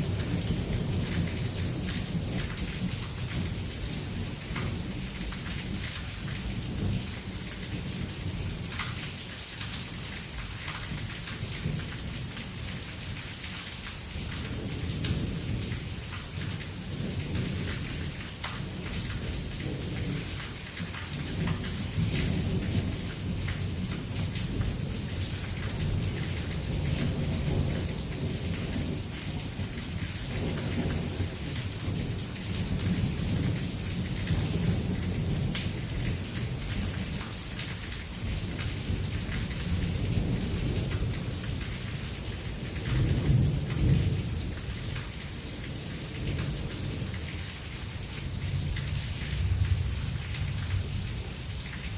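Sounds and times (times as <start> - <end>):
heavy rain pouring: 0.0 - 51.9
low rolling thunder: 21.2 - 37.2, 38.2 - 47.2.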